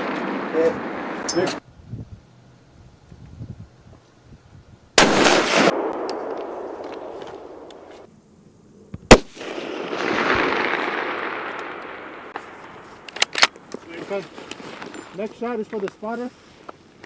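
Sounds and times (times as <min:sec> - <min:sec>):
rifle shots: 0:05.0 - 0:07.9, 0:09.1 - 0:13.6
rolling echo: 0:05.0 - 0:07.9, 0:09.0 - 0:13.2.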